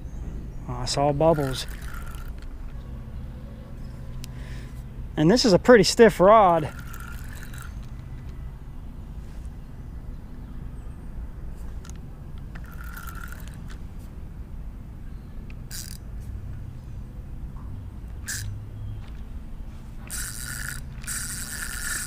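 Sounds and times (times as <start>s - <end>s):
fishing reel whirring and clicking: 1.3s - 2.5s, 6.3s - 8.3s, 11.8s - 13.8s, 15.4s - 16.0s, 18.2s - 18.6s, 20.0s - 22.0s.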